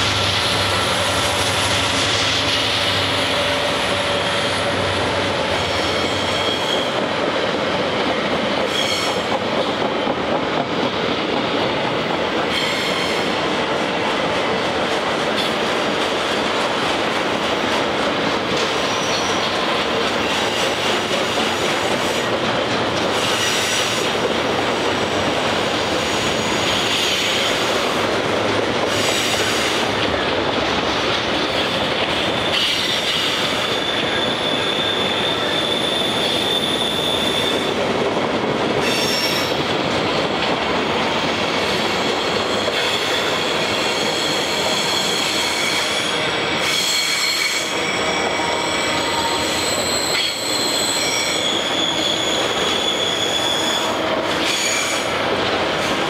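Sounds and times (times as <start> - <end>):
diesel locomotive engine: 0.0 - 56.0
high-pitched wheel squeals: 5.6 - 7.0, 32.4 - 37.7, 43.8 - 55.1.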